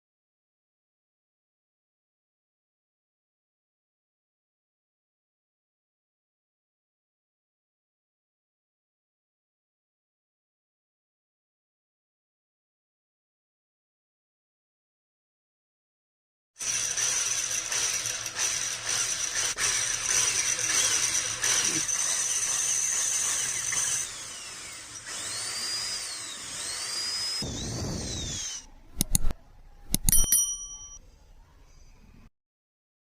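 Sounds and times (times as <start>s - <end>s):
power tool whining: 16.6s - 29.3s
sharp metallic strikes ringing: 30.0s - 31.0s.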